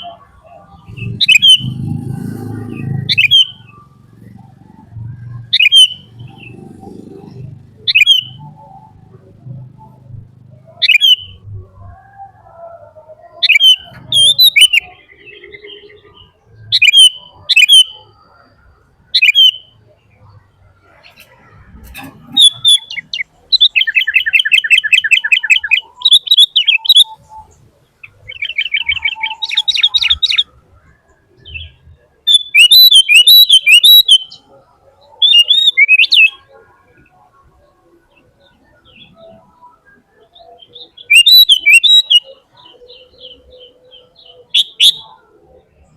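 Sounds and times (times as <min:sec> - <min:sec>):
bird chirping and trilling: 0:00.0 - 0:45.7.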